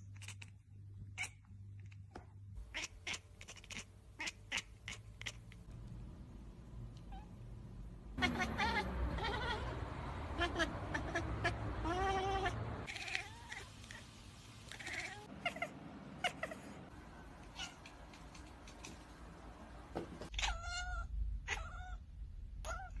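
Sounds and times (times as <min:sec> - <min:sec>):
cat meowing: 0:02.7 - 0:05.5, 0:07.0 - 0:07.3, 0:08.2 - 0:14.1, 0:14.7 - 0:16.8, 0:17.4 - 0:19.0, 0:20.3 - 0:22.0, 0:22.6 - 0:23.0
light clicks and knocks: 0:17.8 - 0:20.4.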